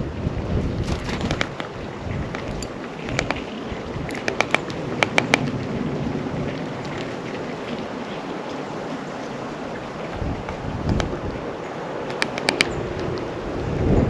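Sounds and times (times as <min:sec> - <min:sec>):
wind noise on microphone: 0:00.0 - 0:14.0
ringing taps at bird feeder: 0:04.1 - 0:05.5, 0:12.1 - 0:12.8.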